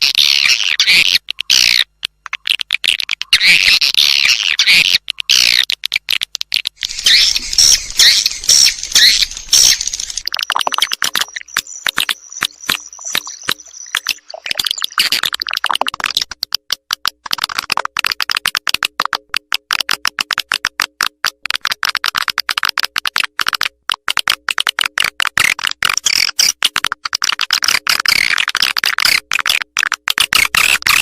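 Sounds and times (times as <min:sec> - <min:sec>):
rapid clicks: 0:05.0 - 0:31.0
recorded swiftlet twittering: 0:06.8 - 0:15.8.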